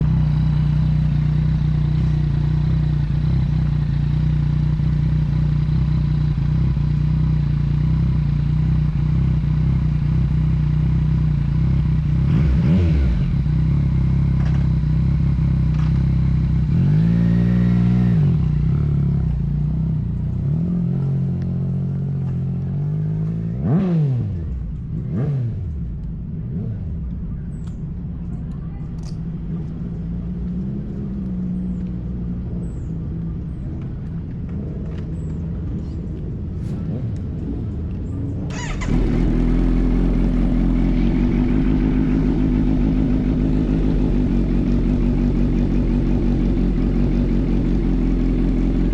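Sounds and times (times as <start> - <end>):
motorcycle engine revving: 0.0 - 27.1, 38.5 - 48.9.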